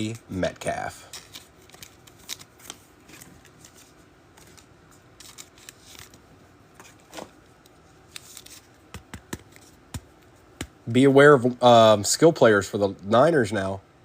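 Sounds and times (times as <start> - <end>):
cards rustling: 0.0 - 10.8.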